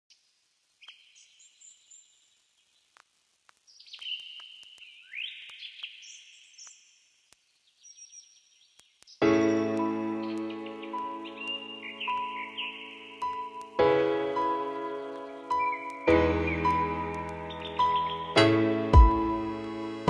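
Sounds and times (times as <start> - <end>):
faint birdsong trills: 3.6 - 13.8, 15.0 - 18.4
soft clicks: 13.2 - 13.8.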